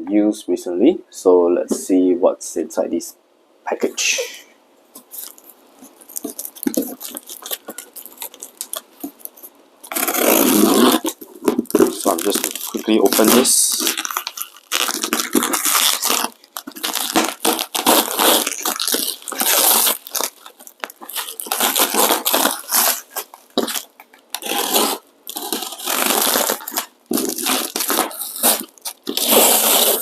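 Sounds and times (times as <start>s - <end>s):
package ripping and crinkling: 5.0s - 30.0s.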